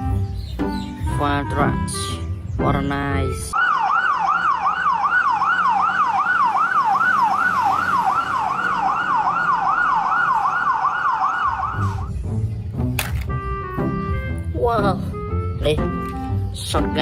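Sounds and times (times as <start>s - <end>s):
fire truck siren yelping: 3.6s - 12.1s.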